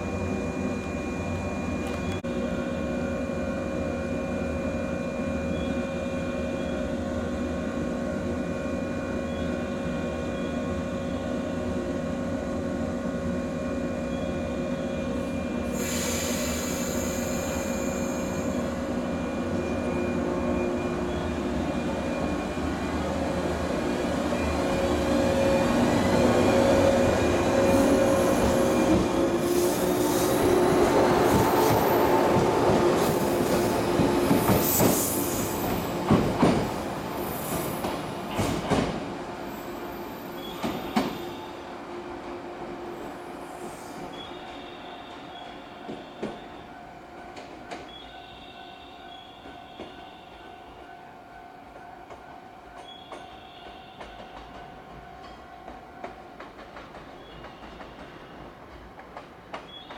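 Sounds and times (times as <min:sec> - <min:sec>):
electric train hum: 0:00.0 - 0:59.6
train wheels squealing: 0:04.2 - 0:07.2, 0:13.9 - 0:23.4, 0:39.5 - 0:41.6, 0:43.0 - 0:46.8, 0:47.7 - 0:51.0, 0:52.7 - 0:55.4, 0:57.0 - 0:58.6, 0:59.6 - 0:59.9
train hiss: 0:15.2 - 0:20.1, 0:25.5 - 0:41.6, 0:42.8 - 0:46.4
train wheels clicking over joints: 0:54.0 - 0:59.9.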